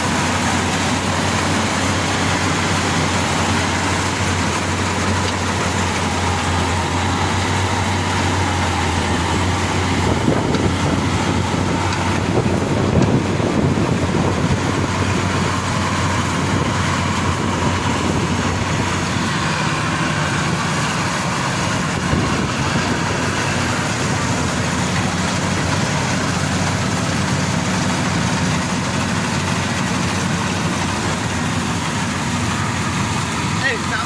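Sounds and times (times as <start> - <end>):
combine harvester engine running: 0.0 - 34.0.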